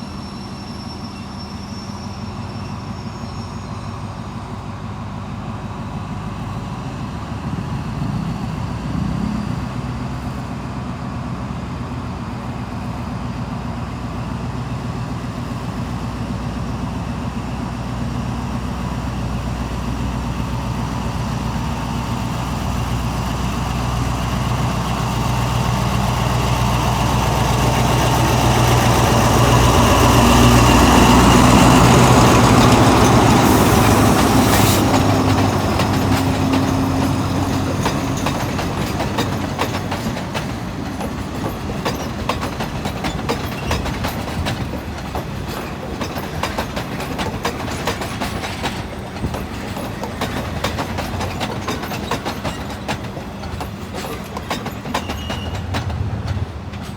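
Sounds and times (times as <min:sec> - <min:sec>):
diesel train engine passing: 0:00.0 - 0:56.9
train wheels clicking over rail joints: 0:14.7 - 0:56.9.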